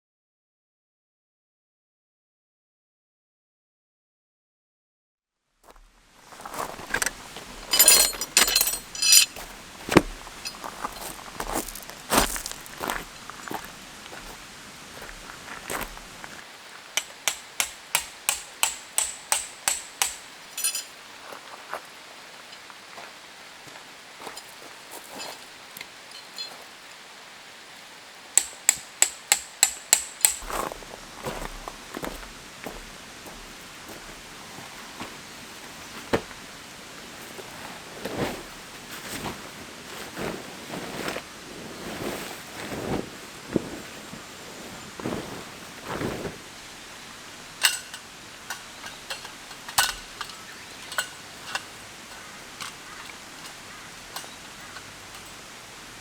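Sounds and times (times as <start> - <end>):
camping gear rustling and scraping: 5.7 - 27.0, 30.0 - 56.0
rain hissing: 5.8 - 56.0
metallic rattle: 6.6 - 11.6, 18.3 - 21.0, 47.6 - 52.8
rain pattering: 8.6 - 17.6, 42.8 - 56.0
hammer striking metal peg: 17.0 - 20.9, 28.4 - 30.5.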